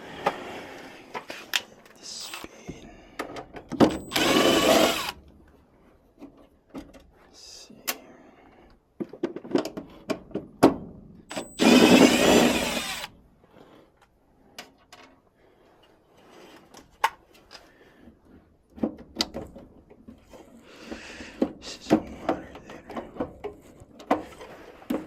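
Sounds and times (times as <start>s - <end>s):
cordless drill running: 2.2s - 2.5s, 3.9s - 5.2s, 11.3s - 13.2s.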